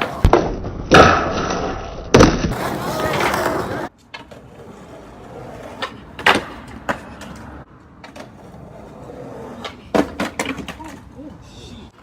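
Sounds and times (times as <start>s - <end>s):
skateboard wheels rolling on concrete: 0.0s - 12.0s
skateboard clacks: 2.1s - 11.2s.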